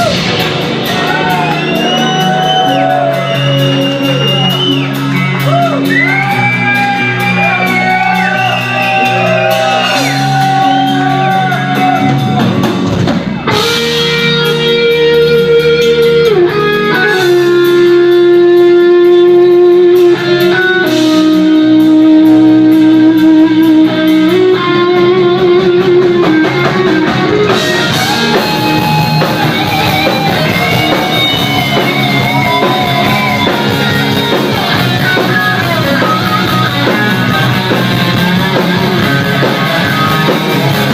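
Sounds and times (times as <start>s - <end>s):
guitar music with vibrato melody: 13.5s - 40.9s.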